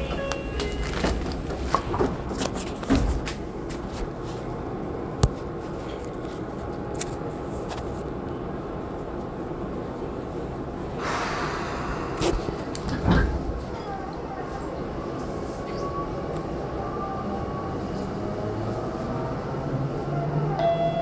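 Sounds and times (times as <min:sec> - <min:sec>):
train clicks and knocks: 0:00.0 - 0:04.2, 0:12.2 - 0:14.3
electric train running rumble: 0:00.0 - 0:05.2, 0:06.3 - 0:21.0.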